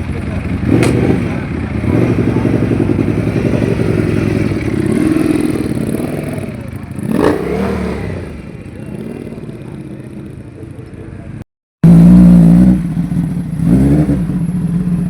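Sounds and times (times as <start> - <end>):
motorcycle engine revving: 0.0 - 15.0
sharp crack: 0.8 - 1.2.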